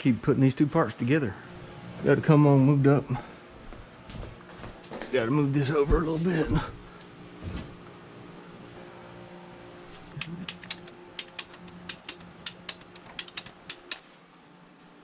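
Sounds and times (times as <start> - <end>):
machine hum: 0.8 - 14.0
ratchet clicking: 10.2 - 14.0.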